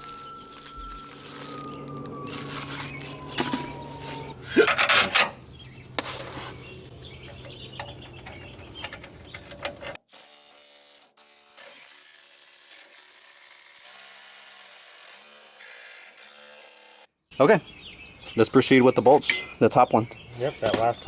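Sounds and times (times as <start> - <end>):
metal hand tools clinking: 3.8 - 10.0, 19.1 - 19.7.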